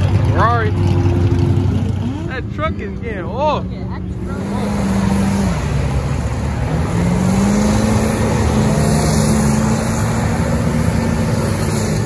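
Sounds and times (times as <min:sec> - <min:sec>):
vehicle engine revving: 0:00.0 - 0:12.0.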